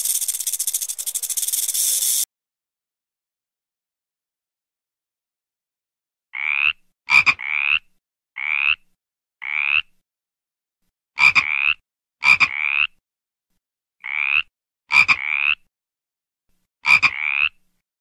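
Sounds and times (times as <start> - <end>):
frog croaking: 6.4 - 7.8, 8.4 - 8.8, 9.4 - 9.9, 14.0 - 15.6, 16.9 - 17.6.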